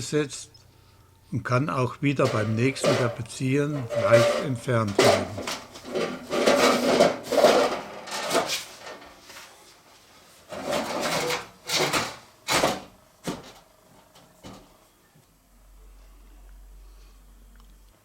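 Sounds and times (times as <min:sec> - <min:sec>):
metal frame scraping: 0:02.0 - 0:09.3, 0:10.5 - 0:12.2.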